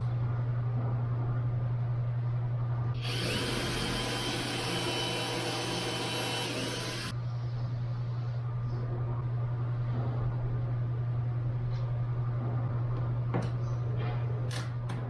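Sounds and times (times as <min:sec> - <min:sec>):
steady low hum: 0:00.0 - 0:15.0
power tool motor spinning: 0:03.0 - 0:07.1.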